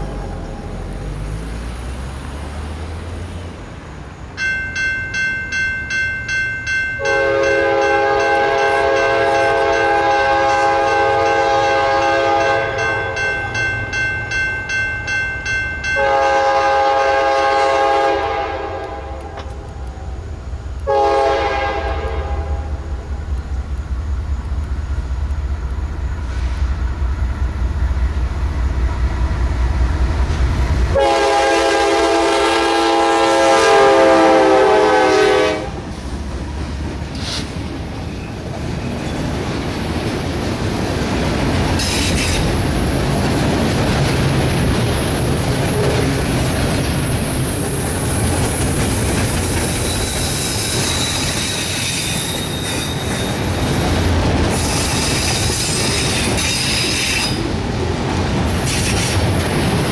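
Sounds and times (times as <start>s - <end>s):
diesel locomotive rumble: 0.0s - 59.9s
bell ringing: 4.4s - 16.4s
locomotive air horn blasts: 7.0s - 13.2s, 16.0s - 19.5s, 20.8s - 22.8s, 30.9s - 35.8s.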